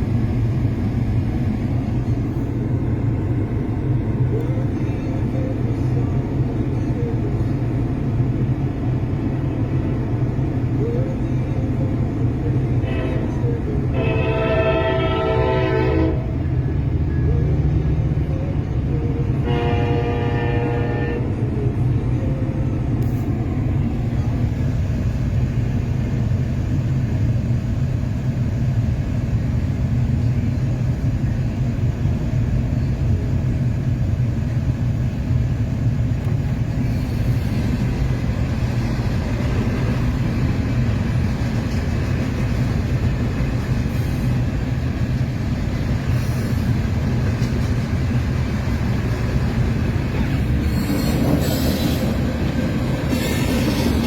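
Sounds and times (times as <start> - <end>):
train rumble: 0.0 - 54.0
high-pitched rail noise: 36.7 - 54.0.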